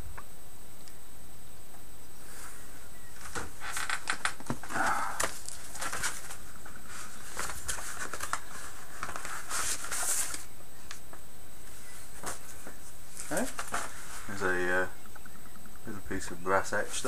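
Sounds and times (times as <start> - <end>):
packaging crinkling and rustling: 3.2 - 11.1.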